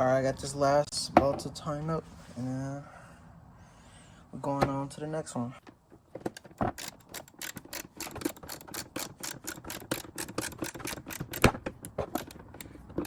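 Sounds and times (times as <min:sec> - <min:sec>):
hand ratchet clicking: 0:06.3 - 0:13.0.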